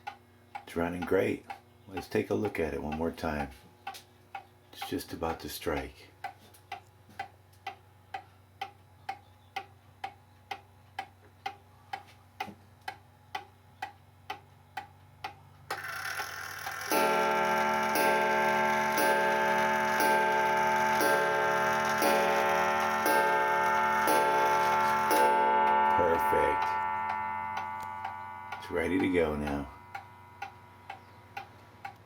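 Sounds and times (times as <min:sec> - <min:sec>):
clock ticking: 0:00.0 - 0:32.0
clock striking: 0:15.7 - 0:32.0.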